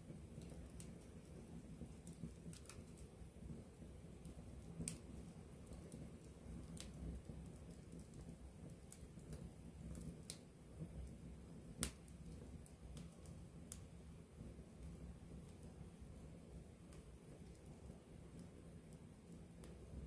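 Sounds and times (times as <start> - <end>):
low rumble of burning fire: 0.0 - 20.0
campfire pops and snaps: 0.1 - 14.0.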